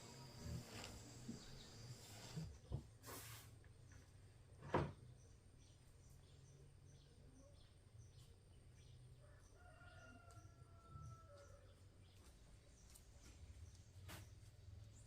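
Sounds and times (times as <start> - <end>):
faint low hum: 0.0 - 2.9.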